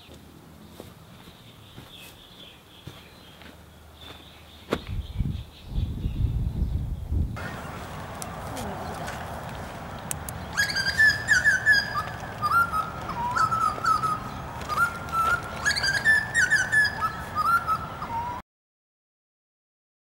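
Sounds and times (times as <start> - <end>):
outdoor background noise: 0.0 - 18.4
bird singing whistled notes: 10.4 - 18.4.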